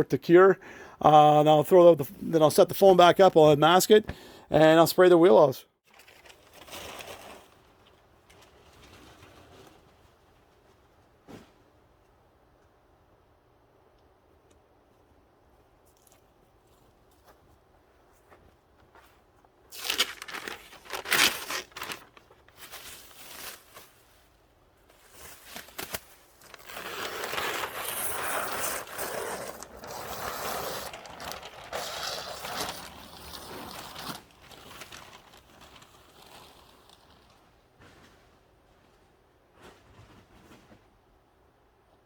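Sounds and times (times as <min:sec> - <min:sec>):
crinkling handling noise: 0:05.8 - 0:12.0, 0:15.7 - 0:41.0
rustling: 0:05.9 - 0:12.1, 0:15.8 - 0:41.1.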